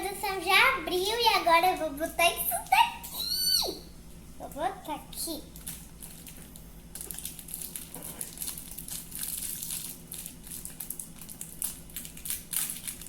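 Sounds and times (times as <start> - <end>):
plastic packaging crinkling: 5.5 - 13.0.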